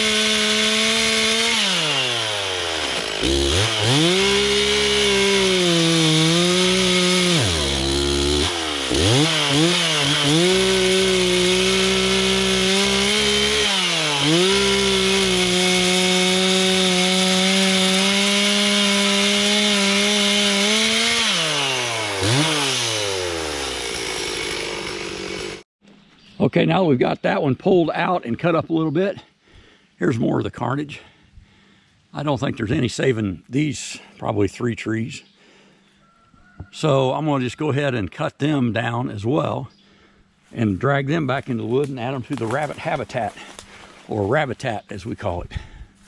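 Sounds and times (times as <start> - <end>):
chainsaw cutting wood: 0.0 - 25.7, 41.5 - 44.2.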